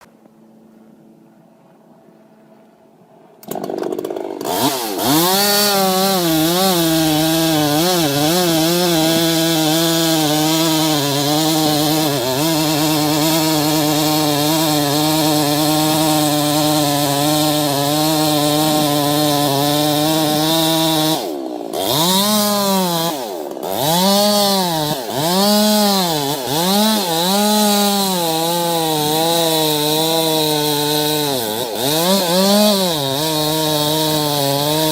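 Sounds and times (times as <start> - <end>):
chainsaw revving: 3.4 - 34.9.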